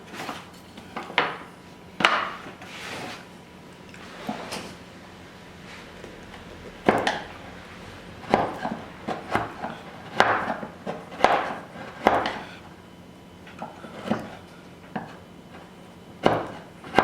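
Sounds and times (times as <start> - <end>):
wood chips scraping: 2.4 - 3.3
chisel knocking into wood: 6.8 - 7.3.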